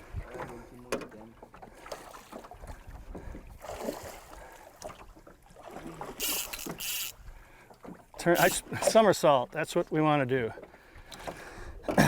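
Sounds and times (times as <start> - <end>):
water noise: 0.0 - 12.0
wind: 0.0 - 12.0
boat engine rumbling: 5.9 - 9.2.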